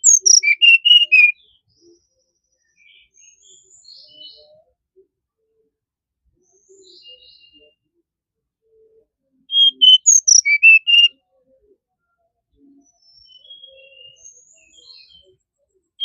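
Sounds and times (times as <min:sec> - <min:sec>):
bird singing whistled notes: 0:00.0 - 0:02.0, 0:02.6 - 0:04.5, 0:06.4 - 0:07.8, 0:09.5 - 0:11.2, 0:12.6 - 0:15.3.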